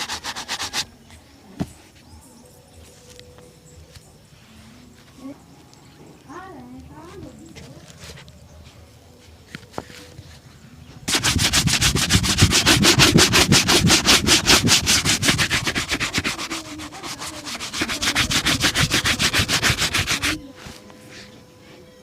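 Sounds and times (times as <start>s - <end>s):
shoe-shine brush strokes: 0.0s - 1.0s, 11.1s - 21.3s.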